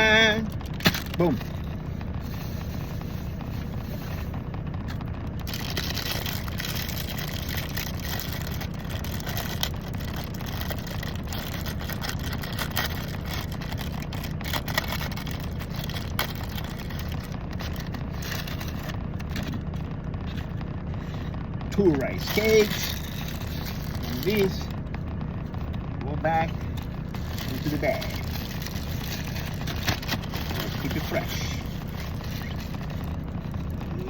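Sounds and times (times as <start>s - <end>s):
semi truck idling: 0.0s - 34.0s
package rustling and clicking: 0.5s - 1.6s, 4.8s - 19.7s, 26.7s - 33.9s.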